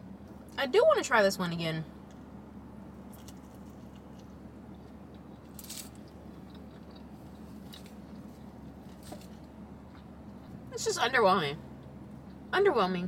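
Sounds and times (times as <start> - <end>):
steady low hum: 0.0 - 13.0
wet chewing mouth sounds: 3.6 - 10.7.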